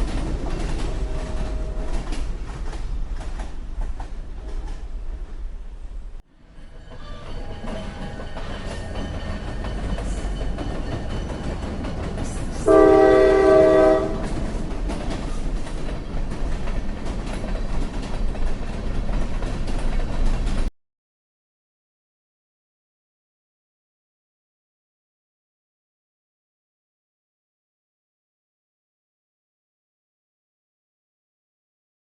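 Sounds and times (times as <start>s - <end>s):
train rumbling: 0.0s - 20.7s
train horn: 0.6s - 2.2s, 12.6s - 14.4s.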